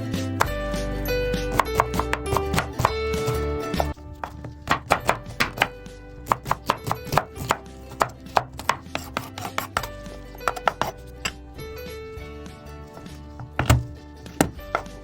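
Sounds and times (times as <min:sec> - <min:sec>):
knife chopping on cutting board: 0:01.4 - 0:11.4, 0:13.4 - 0:15.0.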